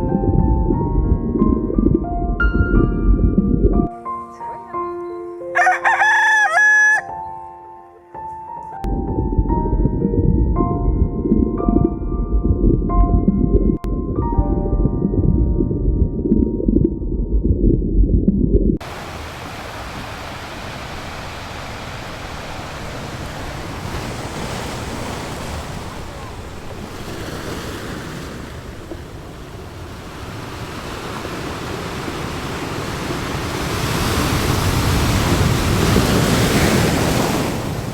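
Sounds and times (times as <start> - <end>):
surf rushing: 18.8 - 37.9.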